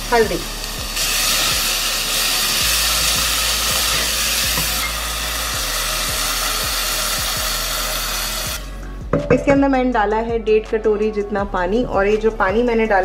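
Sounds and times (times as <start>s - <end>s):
food sizzling in hot oil: 0.0s - 8.7s.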